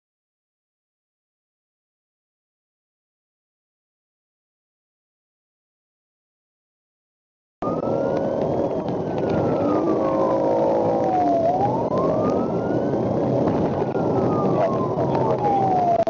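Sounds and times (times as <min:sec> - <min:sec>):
siren wailing: 0:07.6 - 0:16.0
traffic noise: 0:07.6 - 0:16.0.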